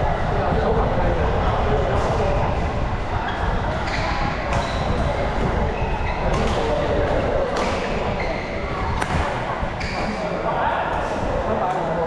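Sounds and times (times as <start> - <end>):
badminton rackets hitting shuttlecock: 7.5 - 8.0.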